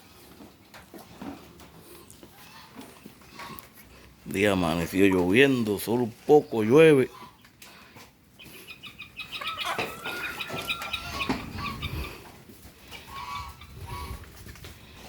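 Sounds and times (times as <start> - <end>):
chickens clucking: 0.1 - 15.0.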